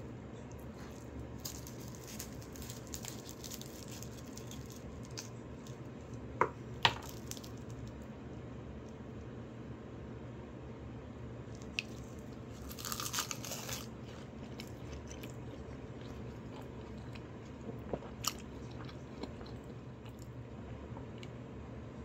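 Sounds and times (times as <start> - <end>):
steady low hum: 0.0 - 22.0
person chewing crunchy food: 0.5 - 6.3, 6.9 - 7.8, 11.6 - 21.3.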